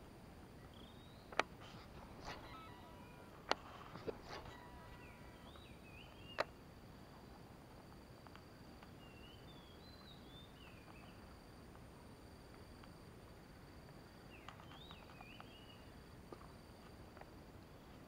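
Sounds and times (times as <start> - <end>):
high insect drone: 0.0 - 18.0
faint bird chirps: 0.6 - 7.4, 8.8 - 11.3, 14.2 - 16.0.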